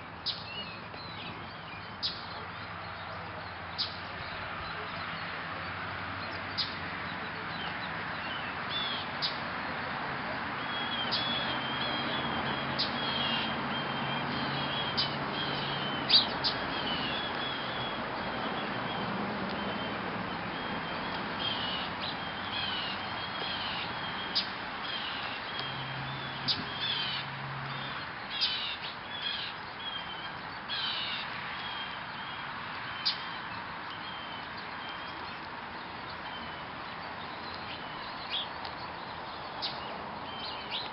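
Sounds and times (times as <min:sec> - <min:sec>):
small birds chirping: 0:00.2 - 0:40.9.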